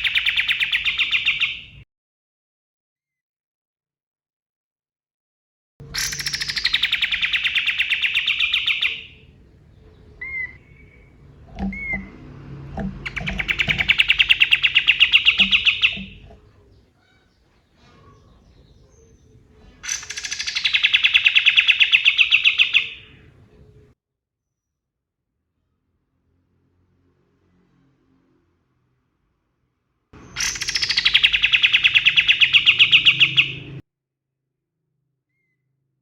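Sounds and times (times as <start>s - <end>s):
bulbul singing rapid rattling trills: 0.0s - 1.8s, 5.8s - 16.8s, 18.0s - 23.8s, 30.2s - 33.8s
short upslurred bird notes: 5.9s - 17.3s
low knocks: 10.6s - 14.2s.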